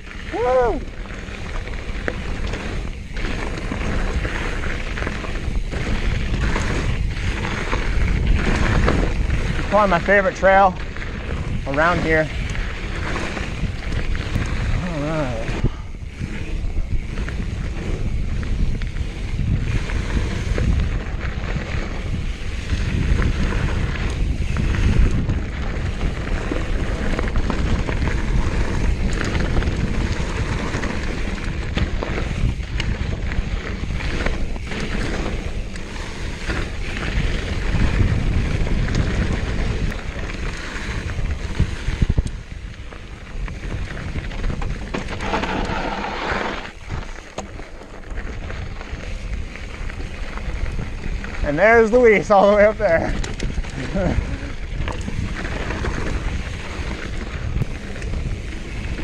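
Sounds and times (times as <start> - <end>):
bike knocks and rattles: 0.0 - 59.0
mountain bike rumbling on dirt: 0.0 - 59.0
wind buffeting microphone: 0.0 - 59.0.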